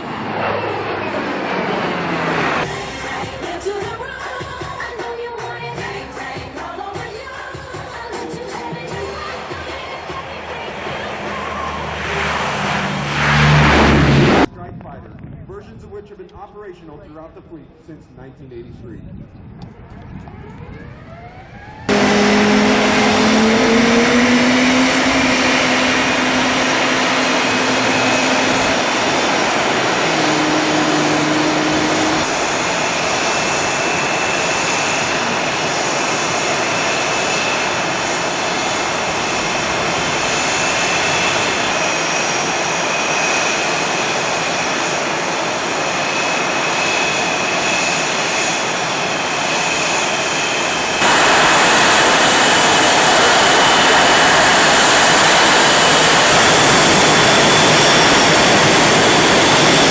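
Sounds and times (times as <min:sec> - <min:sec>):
loud jet noise: 0:00.0 - 0:04.7, 0:06.0 - 0:14.5, 0:19.8 - 0:59.9
low tones: 0:20.3 - 0:32.4.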